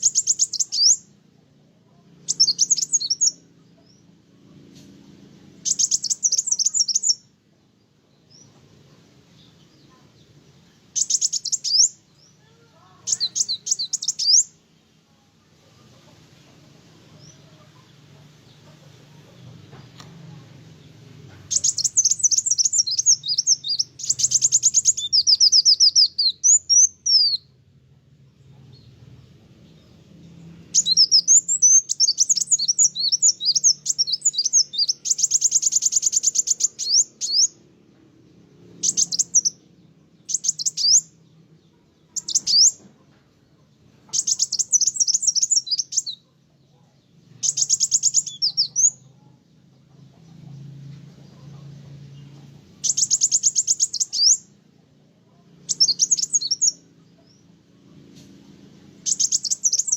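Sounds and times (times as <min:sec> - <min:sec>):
sunbird twittering trills: 0:00.0 - 0:01.2, 0:01.9 - 0:04.1, 0:05.3 - 0:07.3, 0:08.1 - 0:14.6, 0:19.7 - 0:27.6, 0:28.7 - 0:42.9, 0:44.0 - 0:46.4, 0:47.0 - 0:49.4, 0:50.7 - 0:57.6, 0:58.4 - 0:59.9.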